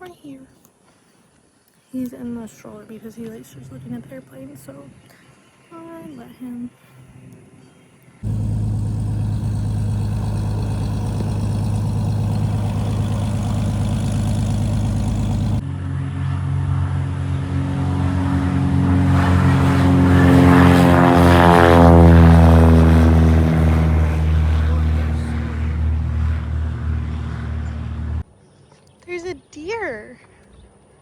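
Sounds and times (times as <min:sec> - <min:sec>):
plane engine running: 0:08.2 - 0:28.2
plane taking off and passing: 0:08.2 - 0:28.2.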